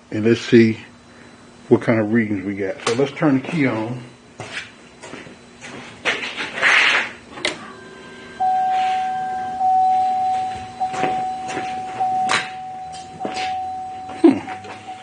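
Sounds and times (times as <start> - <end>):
electronic warning tone: 7.5 - 15.0.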